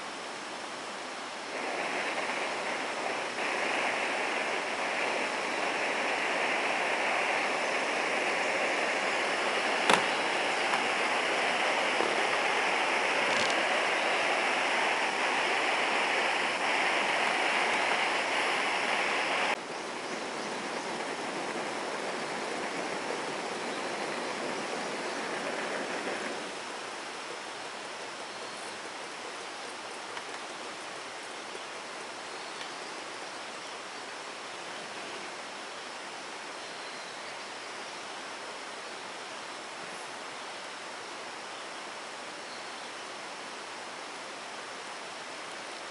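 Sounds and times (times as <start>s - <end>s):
gas burner hissing: 0.0s - 35.7s.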